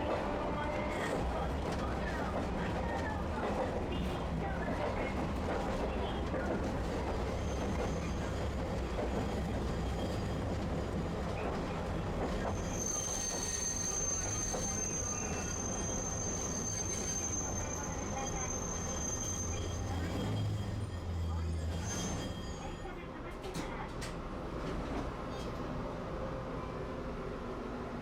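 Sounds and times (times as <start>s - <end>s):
streetcar rumbling on rails: 0.0s - 28.0s
high wheel squeal: 12.4s - 22.8s.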